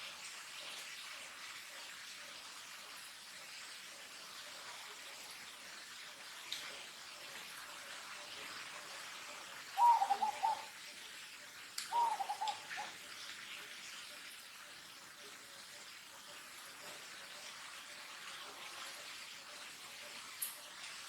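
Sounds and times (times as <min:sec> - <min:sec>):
faint steady hiss: 0:00.0 - 0:21.0
short wavering animal calls: 0:09.8 - 0:10.7, 0:11.9 - 0:13.0.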